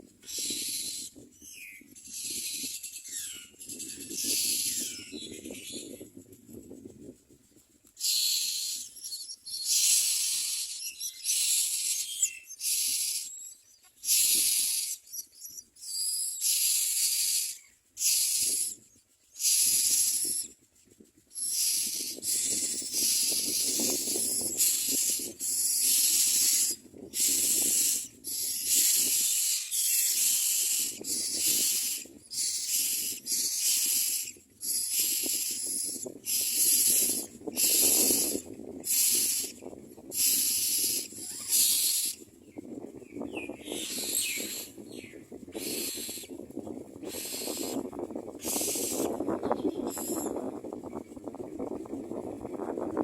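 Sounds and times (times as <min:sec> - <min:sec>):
chicks raspy hissing calls: 0:00.2 - 0:01.2, 0:02.0 - 0:05.3, 0:08.0 - 0:18.8, 0:19.4 - 0:20.5, 0:21.3 - 0:42.3, 0:43.6 - 0:46.4, 0:47.0 - 0:50.4.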